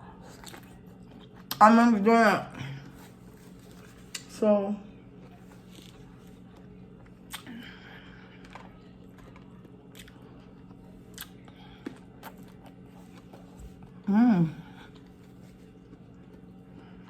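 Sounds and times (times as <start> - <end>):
chewing: 0.0 - 1.6, 5.2 - 14.1, 14.8 - 17.0
low steady hum: 0.0 - 17.0.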